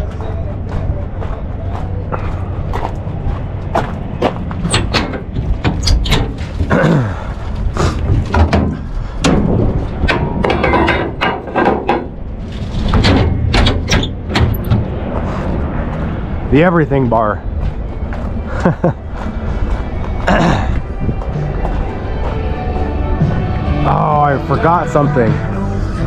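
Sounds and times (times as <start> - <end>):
steady low hum: 0.0 - 26.0
metallic clanks and knocks: 4.6 - 6.9, 8.3 - 14.9.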